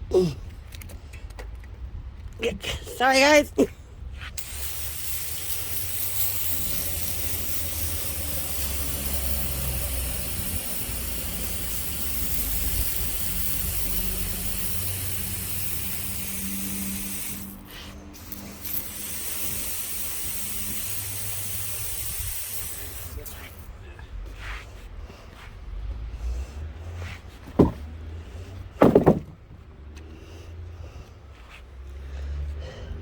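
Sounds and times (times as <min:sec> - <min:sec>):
sawmill cutting hiss: 0:04.4 - 0:23.8.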